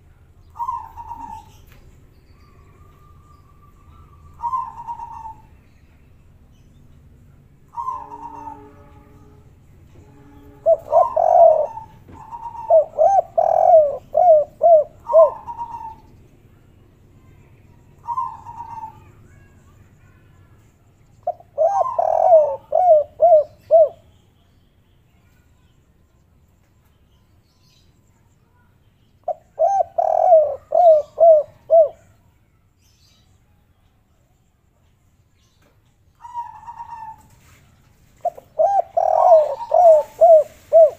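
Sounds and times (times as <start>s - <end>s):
dove cooing: 0.6s - 1.8s, 2.5s - 5.6s, 7.7s - 9.1s, 10.2s - 16.1s, 18.0s - 19.2s, 21.2s - 24.0s, 29.3s - 32.1s, 36.2s - 37.6s, 38.2s - 40.9s.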